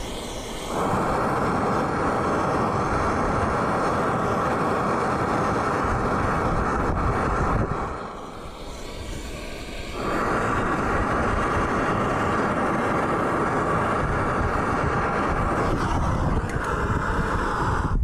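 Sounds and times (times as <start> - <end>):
gas torch flame hissing: 0.0 - 18.0.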